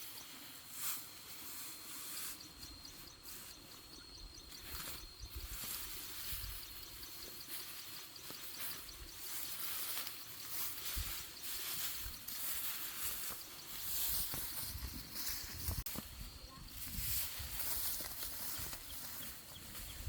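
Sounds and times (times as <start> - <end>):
insect high whine and chirping: 2.0 - 19.7
rustling: 4.6 - 20.0.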